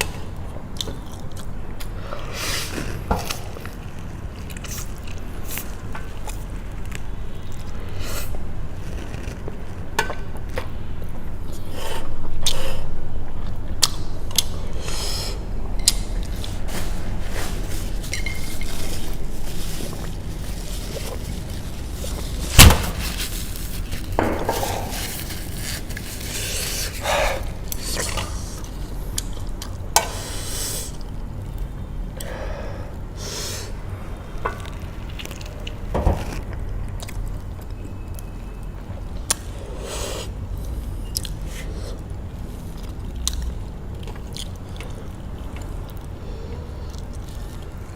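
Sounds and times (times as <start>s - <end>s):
eating sounds: 23.3s - 47.9s.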